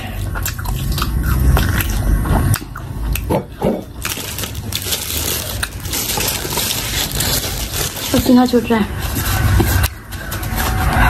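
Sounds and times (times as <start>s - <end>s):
crunchy chewing: 0.0s - 10.3s
wet mouth clicks: 0.2s - 3.9s.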